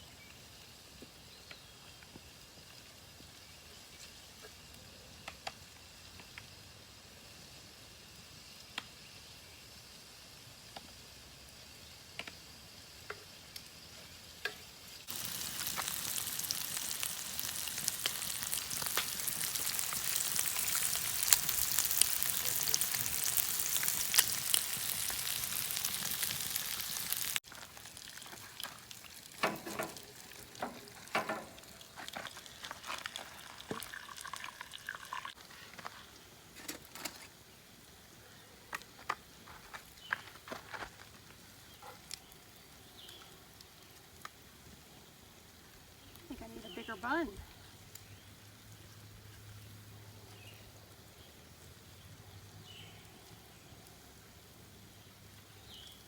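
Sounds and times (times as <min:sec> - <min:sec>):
food sizzling in a skillet: 0:05.6 - 0:36.2, 0:45.9 - 0:50.5.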